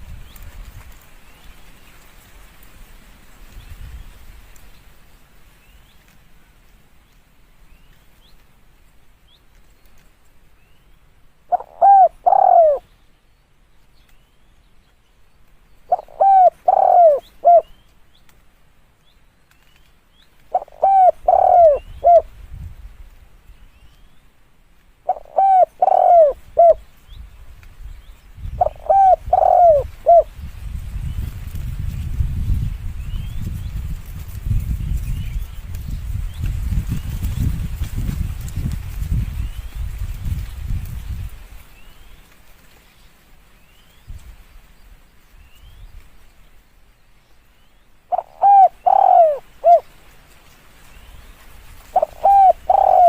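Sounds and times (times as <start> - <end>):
dove cooing: 11.5 - 12.8, 15.9 - 17.7, 20.5 - 22.3, 25.0 - 26.8, 28.6 - 30.3, 48.1 - 49.9, 51.9 - 53.0.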